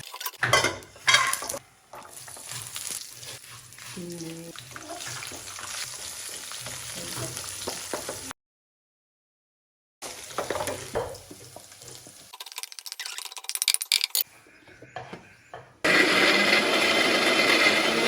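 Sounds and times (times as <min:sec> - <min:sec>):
seeds sizzling in a pan: 0:00.9 - 0:08.3, 0:10.0 - 0:12.4, 0:15.9 - 0:18.0.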